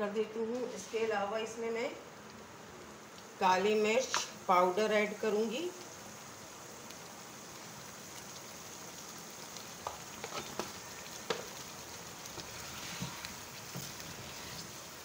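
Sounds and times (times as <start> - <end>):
chicken sizzling in a pan: 2.9 - 15.0
spatula knocking and scraping pan: 12.3 - 14.6.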